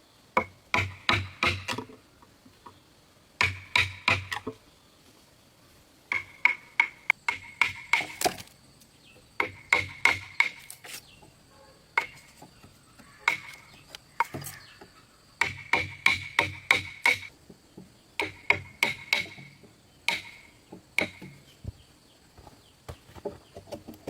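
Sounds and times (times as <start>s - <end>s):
hammer striking wood: 0.4s - 1.9s, 3.4s - 4.6s, 6.1s - 8.4s, 9.4s - 10.8s, 13.2s - 13.6s, 15.4s - 17.3s, 18.2s - 21.4s.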